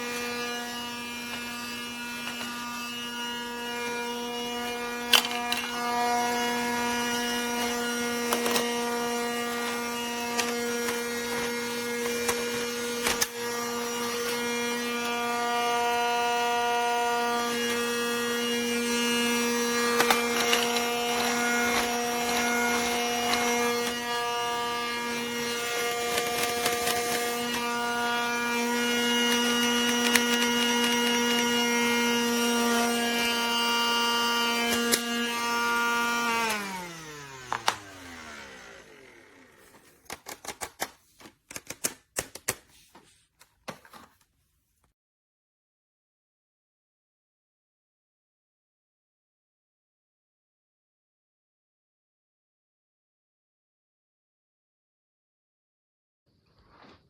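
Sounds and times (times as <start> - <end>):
toy vacuum motor humming: 0.0 - 40.9.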